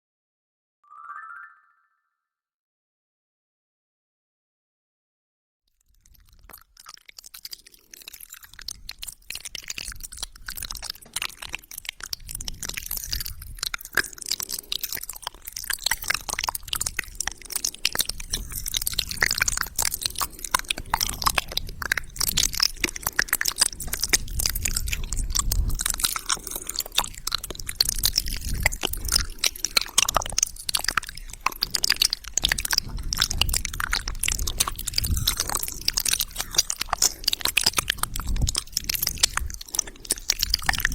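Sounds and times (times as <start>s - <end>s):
wet mouth sounds: 5.8s - 40.9s.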